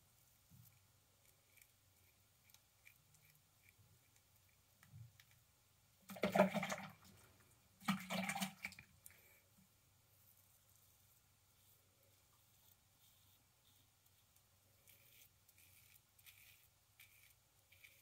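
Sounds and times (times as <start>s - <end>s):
water splashing in a sink: 6.1s - 9.0s.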